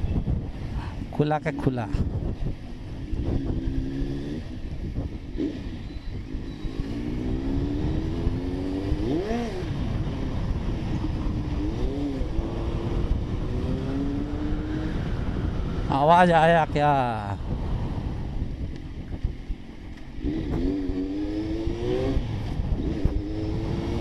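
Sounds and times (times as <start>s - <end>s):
road noise: 0.0s - 24.0s
motorcycle engine revving: 1.5s - 24.0s.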